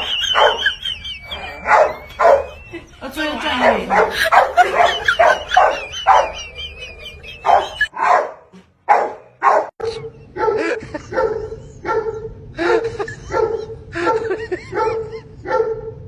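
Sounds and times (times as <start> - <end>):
dog barking: 0.0 - 2.7, 3.6 - 6.5, 7.4 - 12.4, 13.2 - 16.0.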